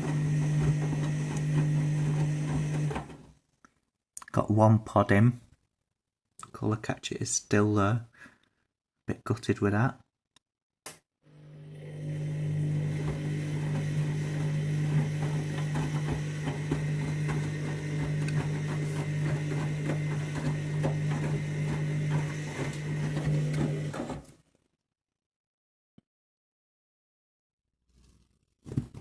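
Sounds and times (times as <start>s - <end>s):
washing machine drum humming: 0.0s - 3.2s, 12.0s - 24.2s
tumbling laundry ticks and knocks: 12.9s - 24.0s.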